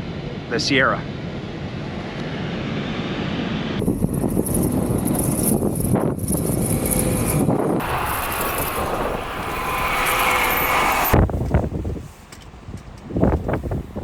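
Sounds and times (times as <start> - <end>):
wind gusting on microphone: 3.8 - 14.0.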